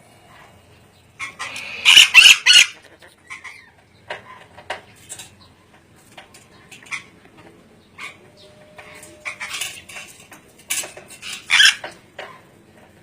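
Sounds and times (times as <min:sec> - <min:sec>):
lorikeet squawking: 0:01.2 - 0:03.8, 0:11.2 - 0:11.9.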